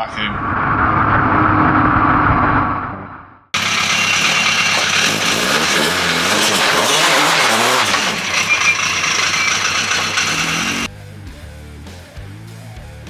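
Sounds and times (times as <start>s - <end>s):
car engine revving: 3.6s - 10.9s.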